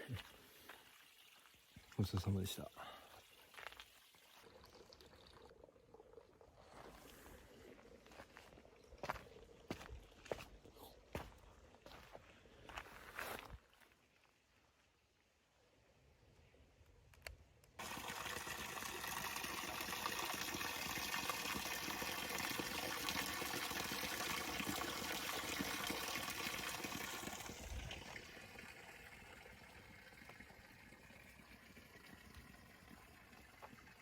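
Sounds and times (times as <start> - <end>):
spring water rushing and splashing: 17.8 - 34.0.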